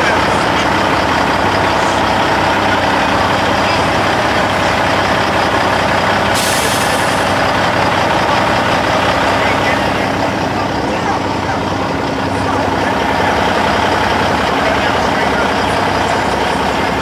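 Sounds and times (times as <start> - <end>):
diesel truck engine running: 0.0 - 17.0
air hissing: 4.1 - 8.7.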